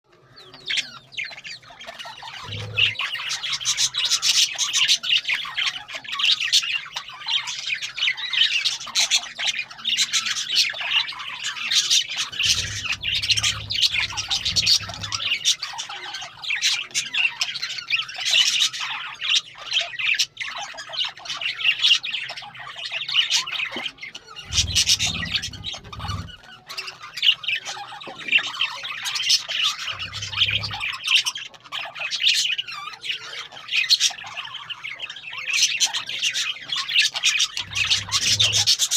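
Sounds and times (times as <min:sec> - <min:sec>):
birds squawking and chirping: 0:00.1 - 0:38.9
low rumble: 0:12.4 - 0:15.2, 0:24.5 - 0:26.4.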